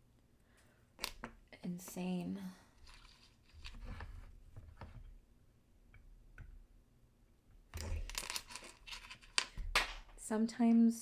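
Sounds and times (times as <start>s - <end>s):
scraping and handling noise: 2.8s - 5.2s, 7.8s - 10.2s.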